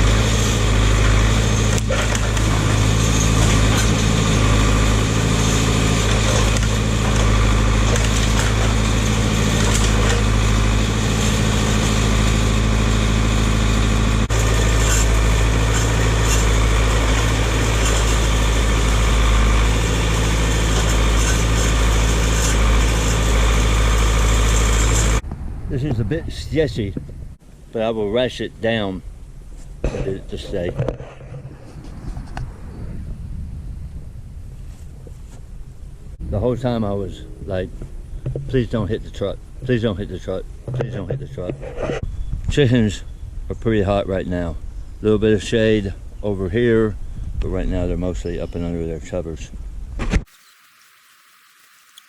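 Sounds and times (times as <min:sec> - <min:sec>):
tractor engine running: 0:00.0 - 0:32.6.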